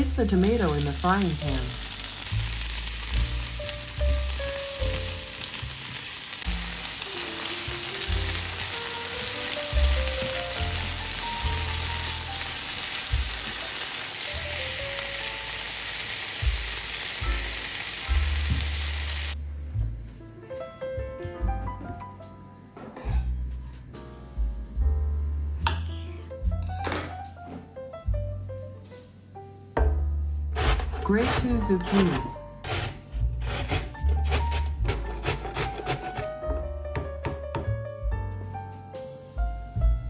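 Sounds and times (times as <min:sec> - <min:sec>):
vegetables sizzling in oil: 0:00.0 - 0:19.4
soft background music: 0:00.0 - 0:40.0.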